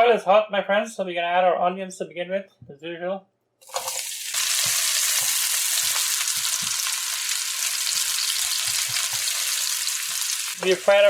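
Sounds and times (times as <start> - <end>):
onions sizzling in oil: 3.6 - 11.0
spoon scraping and knocking pan: 3.7 - 11.0.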